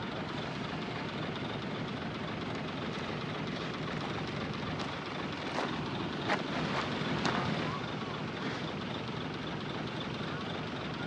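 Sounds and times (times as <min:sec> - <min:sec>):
heavy diesel machinery running: 0:00.0 - 0:11.0.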